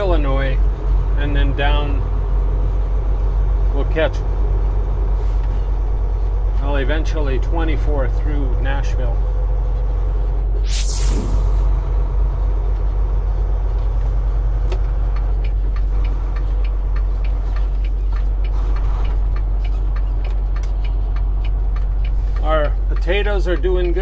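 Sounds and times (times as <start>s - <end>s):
truck engine and road drone: 0.0s - 24.0s
cab ticks and rattles: 13.7s - 24.0s.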